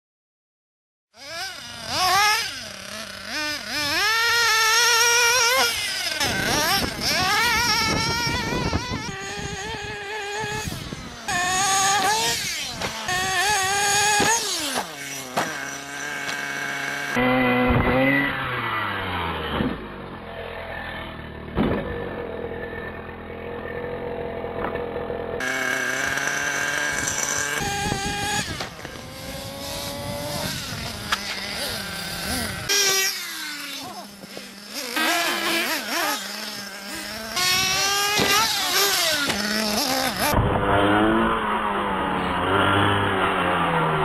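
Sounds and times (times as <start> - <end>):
model car motors whining: 1.2 - 44.0.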